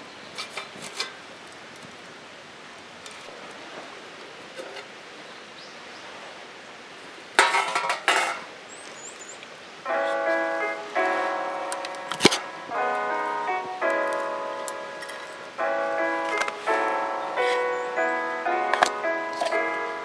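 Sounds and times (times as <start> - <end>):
steady outdoor hiss: 0.0 - 20.0
dishes and utensils clattering: 7.4 - 8.5.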